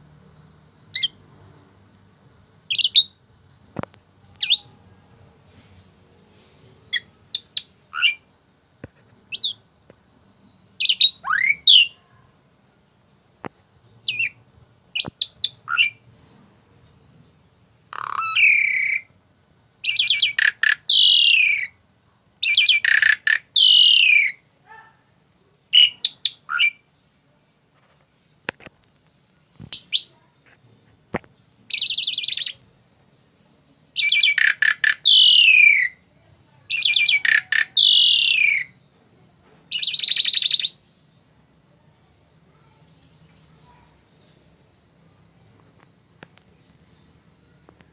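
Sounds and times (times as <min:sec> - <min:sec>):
starling calling with harsh whistles: 0:06.9 - 0:08.3, 0:10.8 - 0:12.0, 0:15.0 - 0:16.0, 0:17.9 - 0:19.1, 0:19.8 - 0:21.8, 0:22.4 - 0:24.9, 0:25.7 - 0:26.9, 0:31.7 - 0:32.6, 0:34.0 - 0:36.0, 0:36.7 - 0:38.8, 0:39.7 - 0:40.8.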